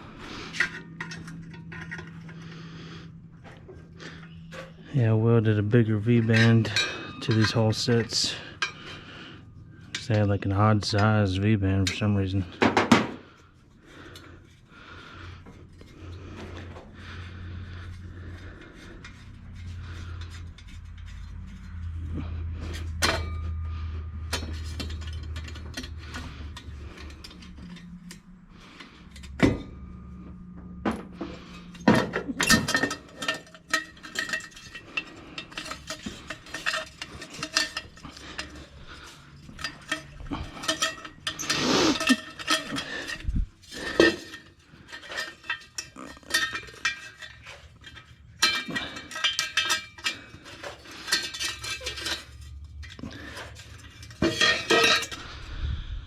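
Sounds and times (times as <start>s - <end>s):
metal tools clinking: 0.0s - 55.5s
low hum: 13.2s - 56.0s.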